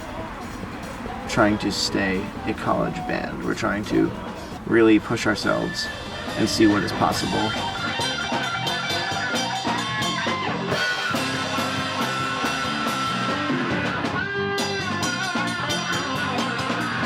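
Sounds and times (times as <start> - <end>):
rock band playing: 4.2 - 17.0.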